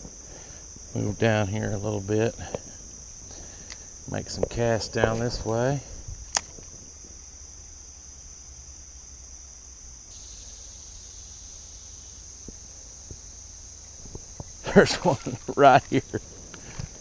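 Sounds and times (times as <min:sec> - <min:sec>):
insects droning: 0:00.0 - 0:17.0
faint ticks: 0:02.4 - 0:04.6.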